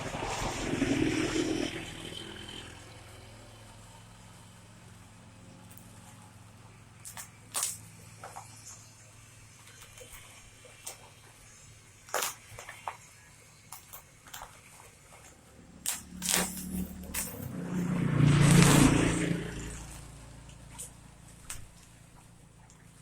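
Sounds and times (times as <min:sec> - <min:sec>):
low steady hum: 0:00.0 - 0:23.0
packaging crackling: 0:15.8 - 0:17.6.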